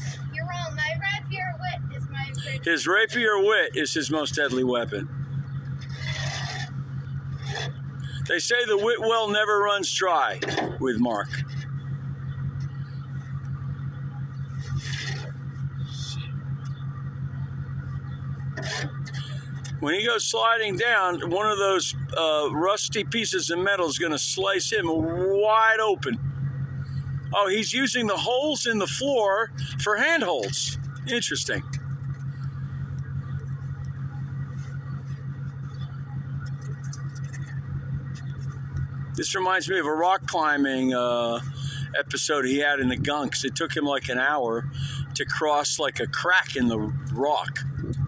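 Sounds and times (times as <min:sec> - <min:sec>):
engine idling hum: 0:00.0 - 0:48.0
short scrapes: 0:05.8 - 0:07.8, 0:14.5 - 0:16.0.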